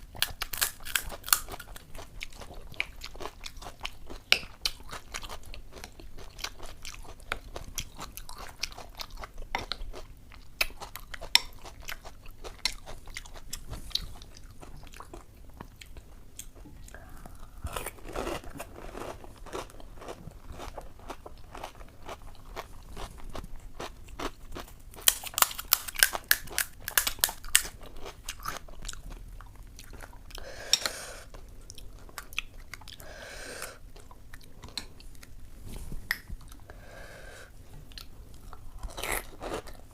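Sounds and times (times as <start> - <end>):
chewing and crunching crisp shells: 0.0 - 30.4.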